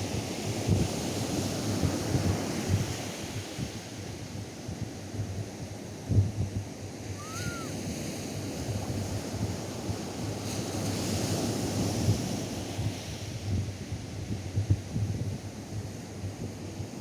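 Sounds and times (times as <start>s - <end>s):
faint high call: 7.2s - 7.7s.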